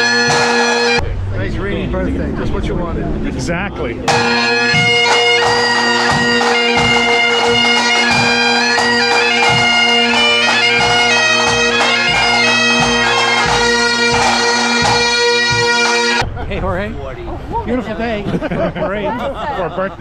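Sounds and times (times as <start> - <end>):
bagpipes playing: 0.0 - 1.0, 4.0 - 16.2
drums beating time: 0.0 - 1.1, 1.7 - 17.0.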